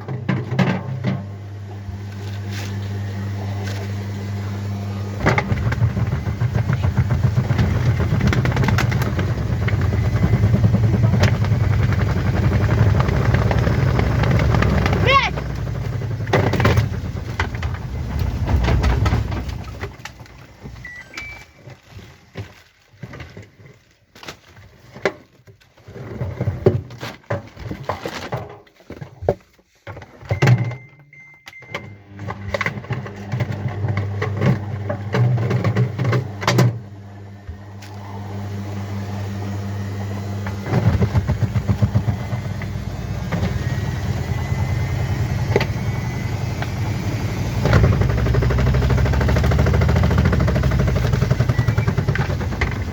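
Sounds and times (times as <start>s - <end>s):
washing machine motor hum: 0.0s - 21.4s, 30.3s - 52.9s
washing machine rattling: 5.2s - 20.6s, 40.6s - 52.9s.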